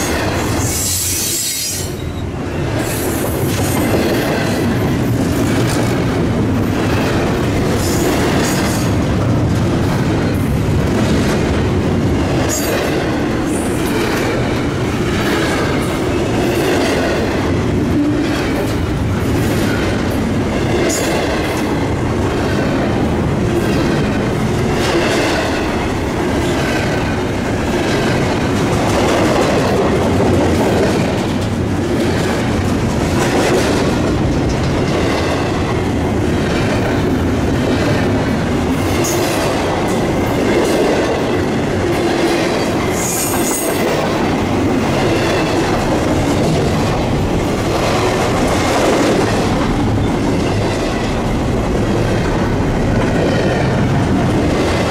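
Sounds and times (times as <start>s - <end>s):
train cars rumbling past: 0.0s - 54.9s
wheels clicking over rail joints: 27.8s - 35.5s.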